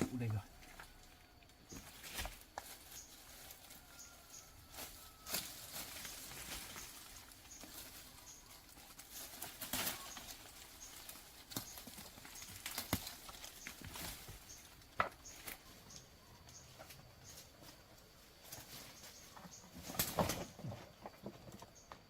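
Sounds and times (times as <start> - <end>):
rustling: 0.0 - 21.9
tool knocking and scraping soil: 11.4 - 15.7.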